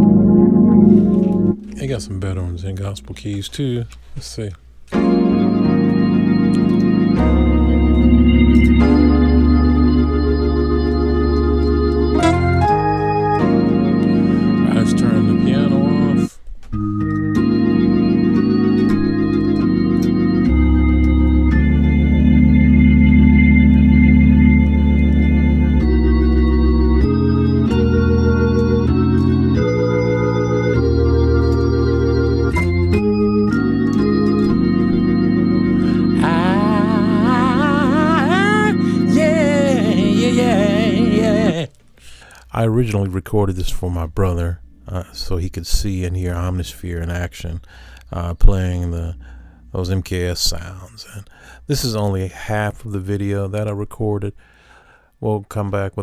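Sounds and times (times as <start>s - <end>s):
synthesizer organ chords: 0.0s - 3.7s, 4.9s - 42.4s.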